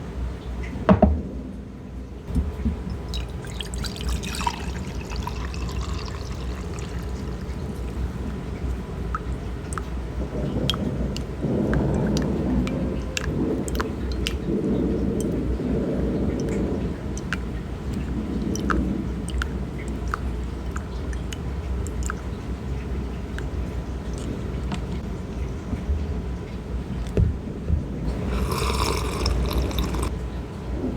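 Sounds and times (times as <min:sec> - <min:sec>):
drip-like ticks: 0:02.3 - 0:27.2
tea pouring into a cup: 0:02.4 - 0:09.9, 0:17.2 - 0:22.2, 0:28.1 - 0:30.2
steady low rumble: 0:07.2 - 0:28.4.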